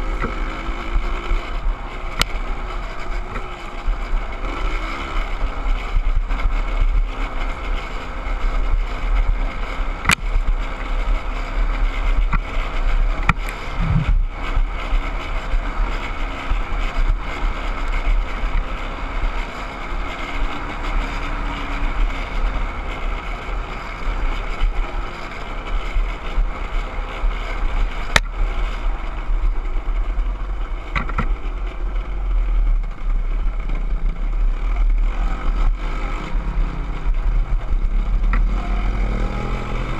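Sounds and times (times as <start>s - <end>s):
dirt bike engine running: 0.0s - 39.9s
wind on microphone: 11.7s - 17.3s.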